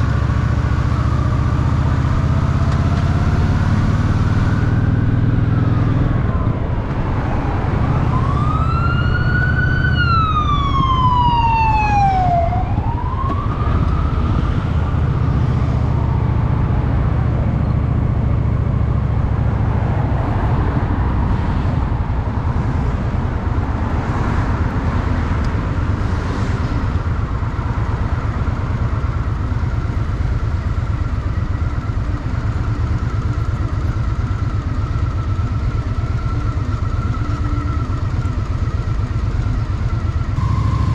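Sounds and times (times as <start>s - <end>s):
siren wailing: 3.1s - 18.6s, 40.4s - 40.9s
motorcycle engine running: 26.7s - 40.9s.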